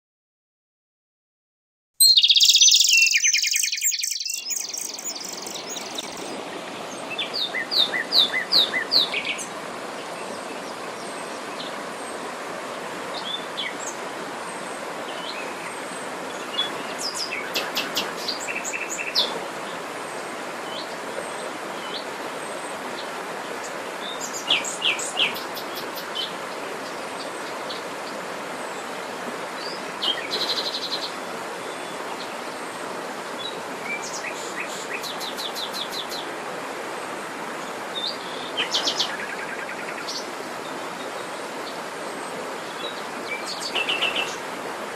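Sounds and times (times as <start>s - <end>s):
songbirds chirping and trilling: 2.0s - 44.8s.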